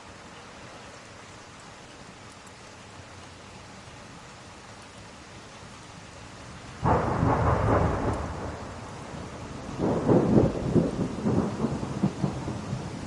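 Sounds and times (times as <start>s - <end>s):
steady rain: 0.0s - 13.0s
thunder rumbling: 6.8s - 13.0s.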